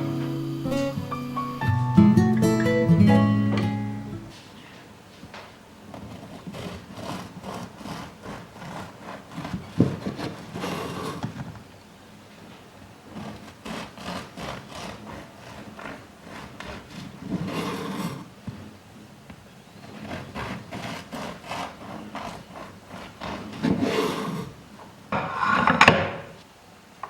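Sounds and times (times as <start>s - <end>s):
scraping on a hard surface: 5.9s - 11.5s, 13.1s - 18.3s, 19.9s - 24.5s, 25.2s - 26.4s.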